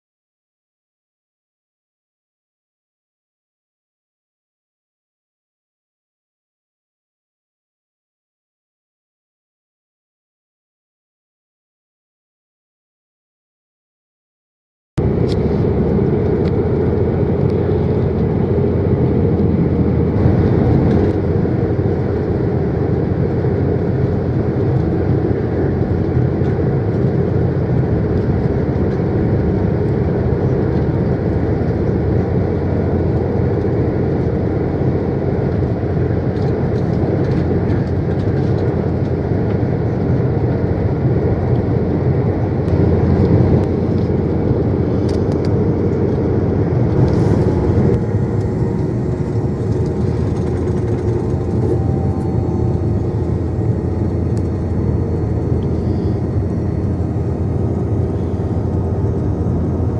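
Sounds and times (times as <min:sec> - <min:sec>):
passenger train rumbling: 0:15.0 - 0:59.9.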